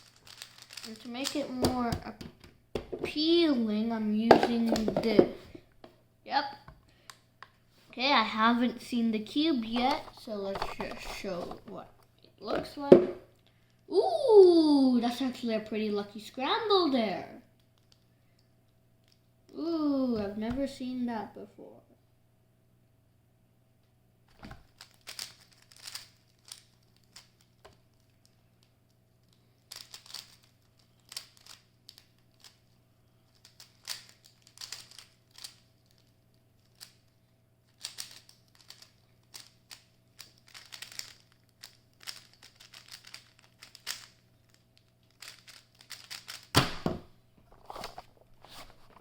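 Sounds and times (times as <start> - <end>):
puzzle cube plastic clicking: 24.8 - 27.8, 33.4 - 36.1, 37.8 - 46.5.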